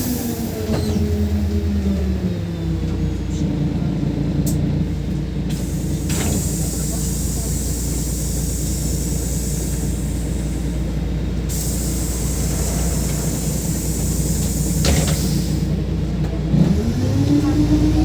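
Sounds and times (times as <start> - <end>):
bus engine running: 0.0 - 18.0
clunk: 14.4 - 15.4.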